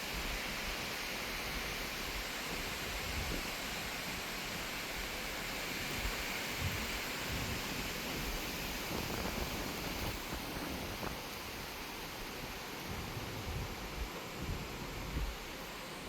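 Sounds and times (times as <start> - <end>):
wind rushing through trees: 0.0 - 16.0
wind buffeting microphone: 6.0 - 11.8, 12.4 - 15.7.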